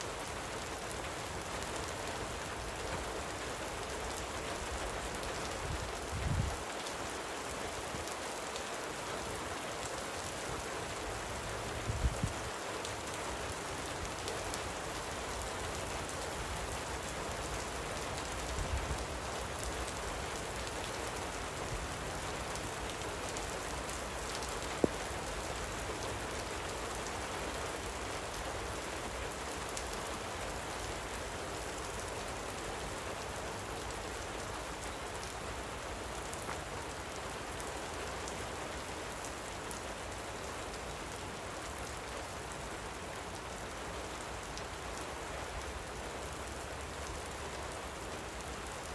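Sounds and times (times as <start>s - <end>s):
light rain falling: 0.0s - 48.9s.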